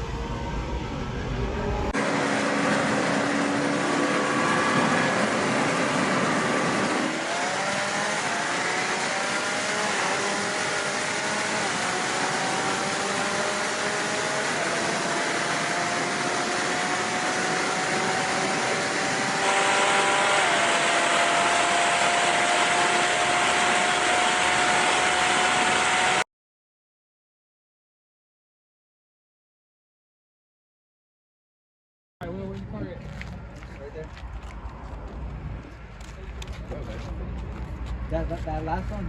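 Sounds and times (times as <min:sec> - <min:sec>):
race car engine accelerating: 0:00.0 - 0:26.2.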